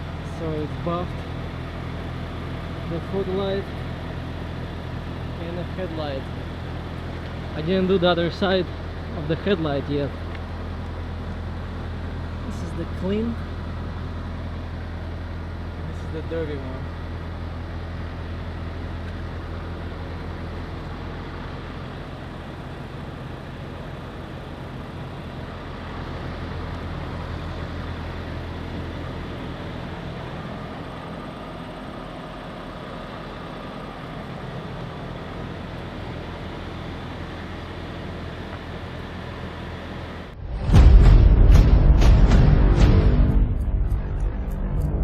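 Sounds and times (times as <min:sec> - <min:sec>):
diesel truck engine idling: 0:00.0 - 0:45.0.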